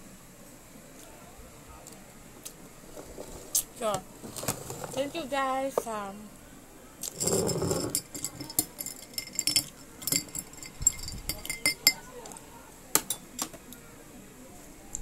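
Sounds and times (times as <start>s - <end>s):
glass and tableware clinking: 7.0s - 12.1s, 13.0s - 13.5s.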